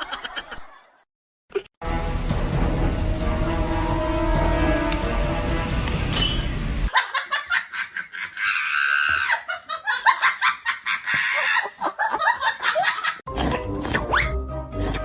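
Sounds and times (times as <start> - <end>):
music: 1.8 - 6.9, 13.3 - 15.0
person laughing: 6.9 - 13.2.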